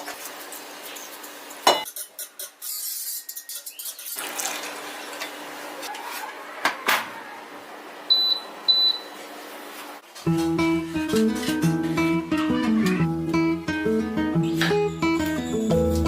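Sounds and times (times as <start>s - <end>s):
utensils and dishes clinking: 1.6s - 5.4s.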